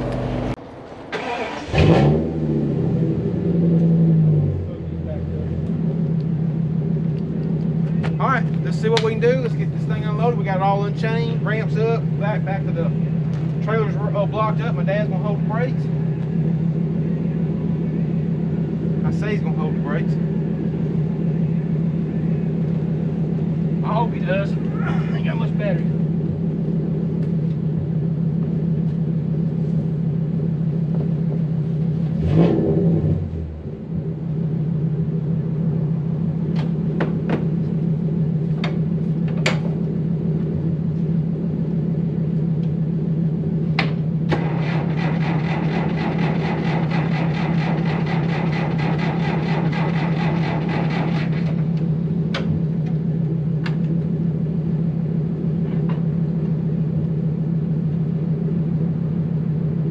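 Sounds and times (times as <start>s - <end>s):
engine idling: 0.0s - 59.9s
pulsing buzzing rattle: 44.3s - 52.0s.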